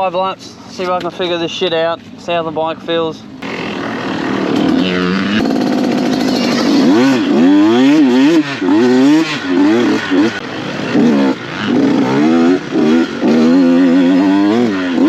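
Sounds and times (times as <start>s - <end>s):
dirt bike engine revving: 3.4s - 15.0s.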